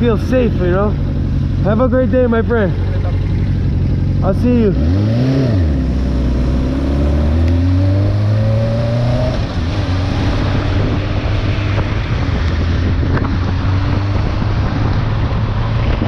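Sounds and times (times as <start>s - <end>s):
wind and road noise: 0.0s - 16.0s
motorcycle engine pulling away: 4.6s - 16.0s.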